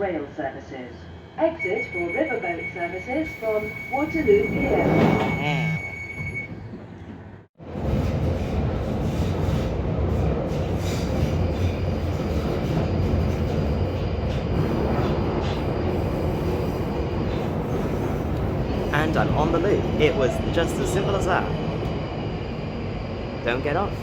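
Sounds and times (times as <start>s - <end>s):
train wheels rumbling on rail: 6.3s - 24.0s.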